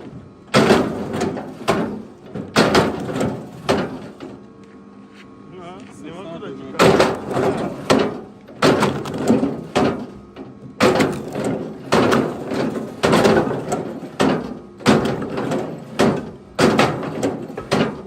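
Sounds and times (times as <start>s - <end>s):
firewood thrown down clattering: 0.6s - 4.4s, 6.8s - 10.1s, 10.8s - 18.0s.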